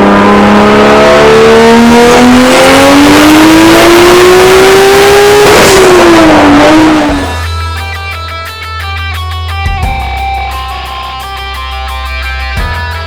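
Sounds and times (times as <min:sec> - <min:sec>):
car engine revving at full throttle: 0:00.0 - 0:07.8.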